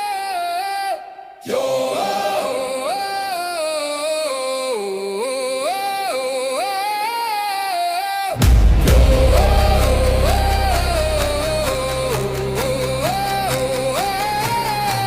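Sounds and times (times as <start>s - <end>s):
wordless chant-like singing: 0.0s - 15.0s.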